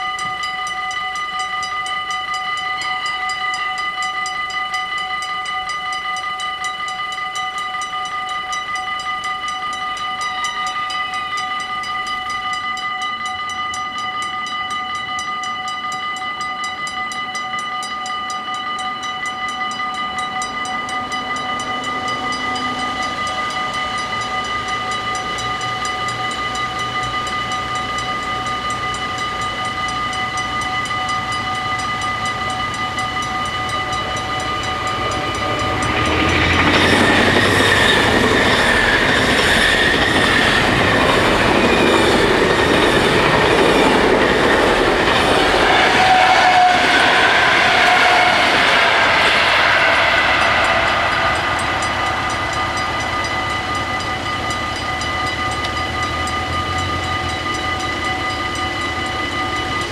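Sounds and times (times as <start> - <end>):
level crossing bells ringing: 0.0 - 59.9
train wheels clattering over rails: 34.3 - 54.1.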